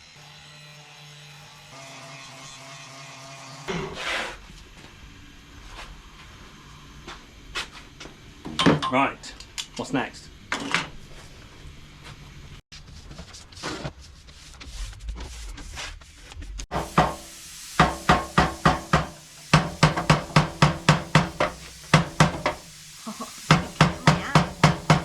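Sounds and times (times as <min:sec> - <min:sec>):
hammer blows on steel frame: 0:16.7 - 0:22.8, 0:23.5 - 0:25.0.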